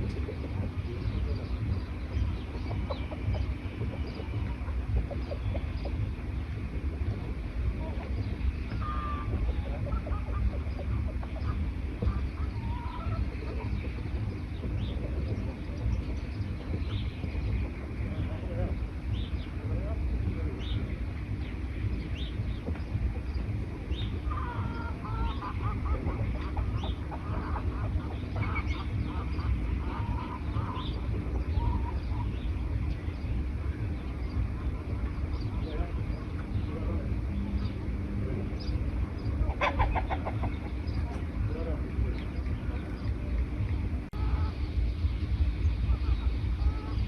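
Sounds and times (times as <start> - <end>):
forest birds chirping: 0.0 - 47.0
steady low rumble: 0.0 - 47.0.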